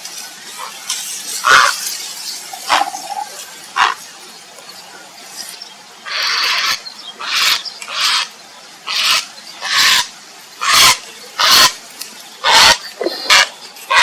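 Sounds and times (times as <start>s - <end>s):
heron croaking: 2.6s - 4.0s, 8.9s - 11.8s, 12.4s - 14.0s.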